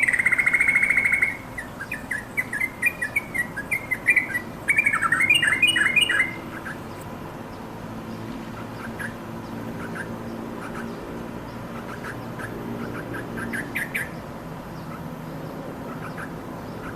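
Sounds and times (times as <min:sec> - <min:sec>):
bulbul chirping: 0:00.0 - 0:06.8.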